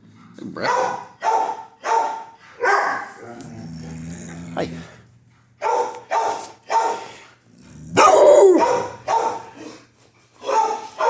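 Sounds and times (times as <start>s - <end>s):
dog barking: 0.6s - 3.2s, 5.6s - 7.1s, 8.0s - 9.6s, 10.4s - 11.0s.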